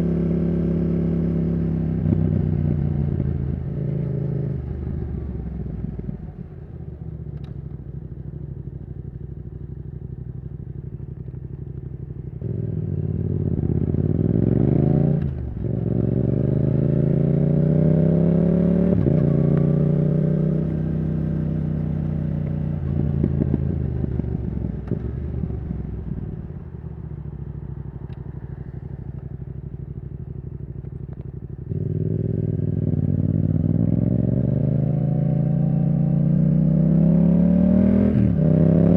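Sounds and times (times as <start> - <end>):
motorcycle engine revving: 10.9 - 38.9.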